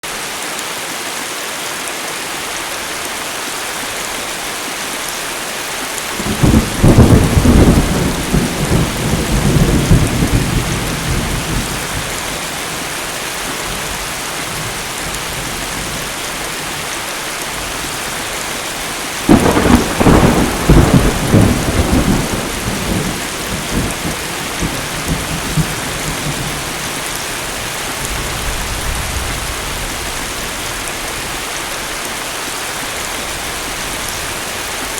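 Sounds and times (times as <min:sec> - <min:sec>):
heavy rain: 0:00.0 - 0:34.9
thunder rumbling: 0:06.1 - 0:16.2, 0:17.6 - 0:30.2.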